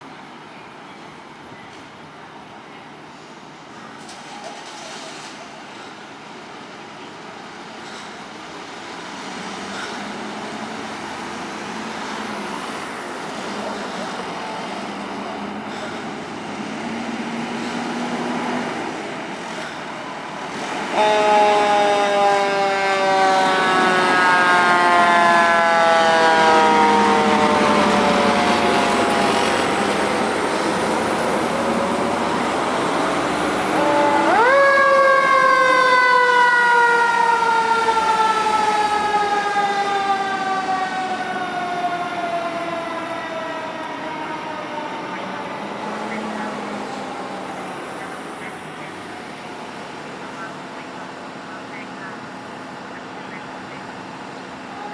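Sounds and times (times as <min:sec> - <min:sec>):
traffic noise: 0:00.0 - 0:54.9
fire engine siren: 0:02.3 - 0:14.4, 0:15.7 - 0:54.9.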